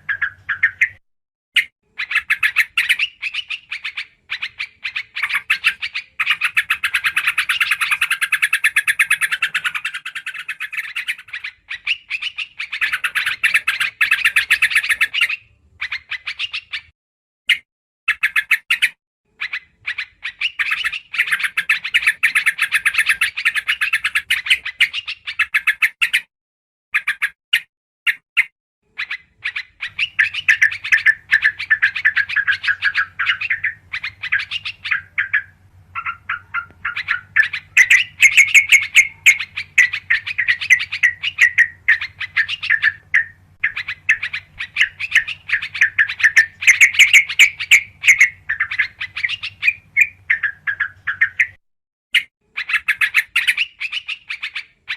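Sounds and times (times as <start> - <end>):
bird bubbly chirping song: 0.0 - 1.0, 1.6 - 16.9, 28.9 - 51.6, 52.2 - 54.9.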